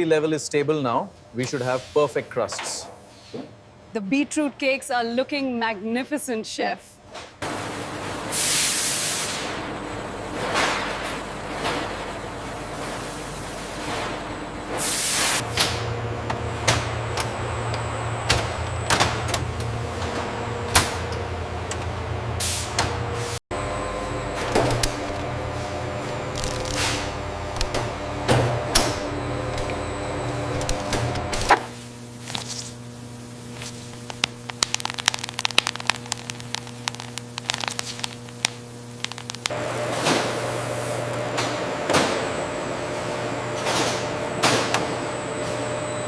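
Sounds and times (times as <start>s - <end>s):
factory machinery humming: 7.4s - 46.0s
sharp crackling clicks: 34.0s - 39.6s.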